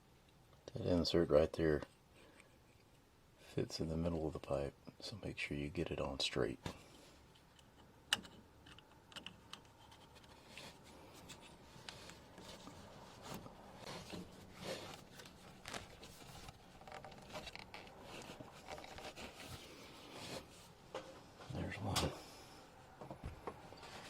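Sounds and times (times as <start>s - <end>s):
small irregular clicks: 7.3s - 12.5s
faint scraping and rubbing of pipe: 9.4s - 22.8s, 23.6s - 24.0s.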